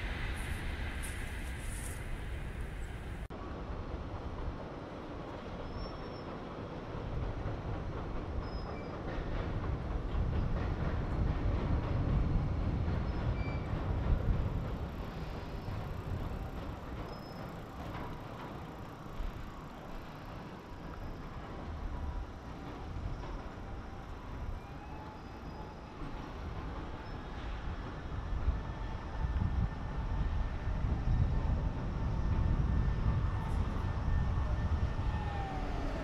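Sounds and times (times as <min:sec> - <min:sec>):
train rumbling across a bridge: 0:00.0 - 0:36.0
wheels clattering over rail joints: 0:05.4 - 0:24.5.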